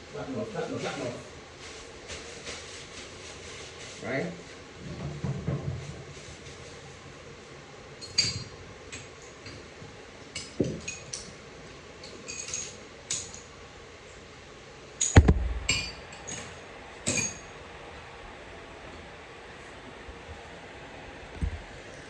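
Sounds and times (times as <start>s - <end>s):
heavy metal clunk: 15.1s - 15.9s.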